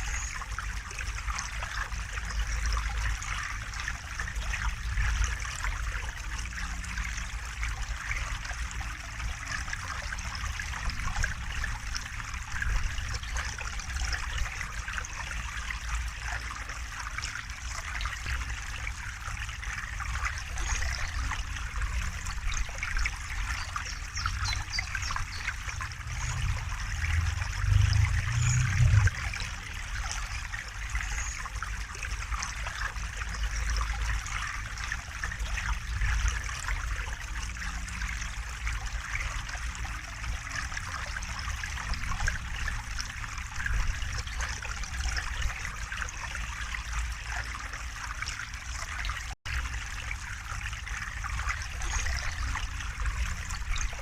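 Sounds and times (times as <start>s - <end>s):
river water flowing: 0.0s - 54.0s
low rumble: 25.0s - 30.4s.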